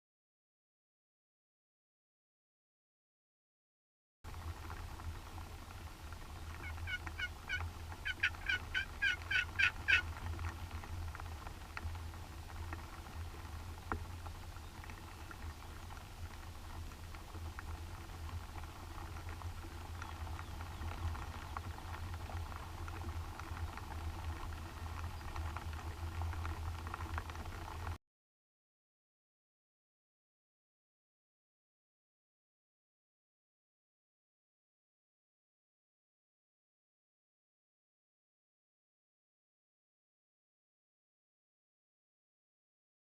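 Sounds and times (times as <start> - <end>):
turkey yelping: 6.6 - 10.0.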